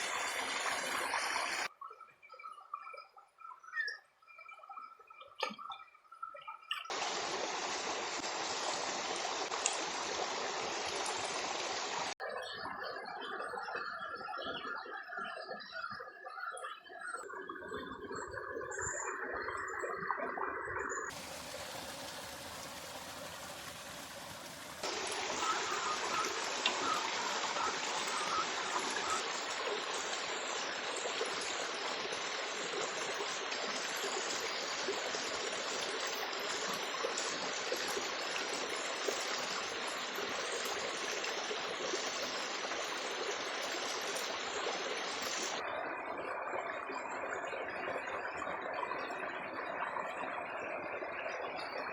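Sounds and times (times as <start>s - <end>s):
river water rushing: 6.9s - 12.2s, 21.1s - 32.8s.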